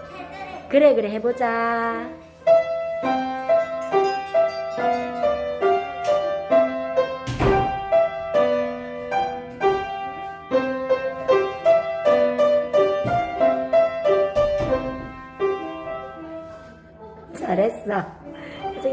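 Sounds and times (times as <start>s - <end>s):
child playing piano: 2.3s - 17.3s.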